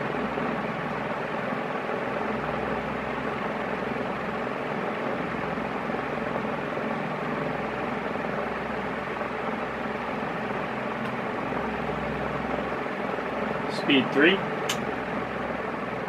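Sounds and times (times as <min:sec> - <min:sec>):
ceiling fan rushing air: 0:00.0 - 0:16.0.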